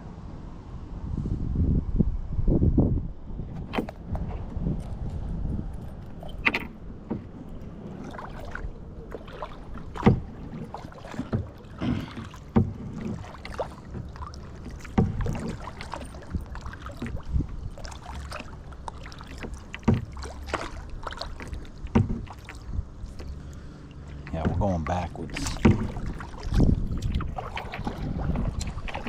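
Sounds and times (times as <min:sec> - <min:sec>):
low steady rumble: 0:00.0 - 0:29.0
paddle splashing in water: 0:03.6 - 0:29.0
paddle knocking against hull: 0:06.0 - 0:29.0.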